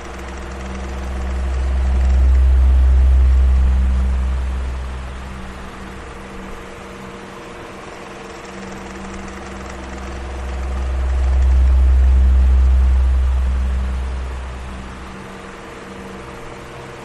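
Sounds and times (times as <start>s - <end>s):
deep low rumble: 0.0s - 6.6s, 9.8s - 15.4s
electric fan running: 0.0s - 17.0s.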